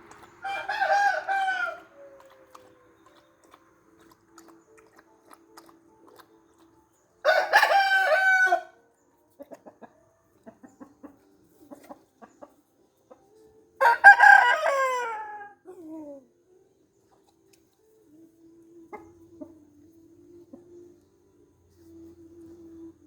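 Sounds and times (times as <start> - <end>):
chicken clucking: 0.0 - 8.4, 9.2 - 16.2, 17.1 - 23.0
rooster crowing: 0.4 - 2.7, 7.3 - 8.8, 13.8 - 15.6.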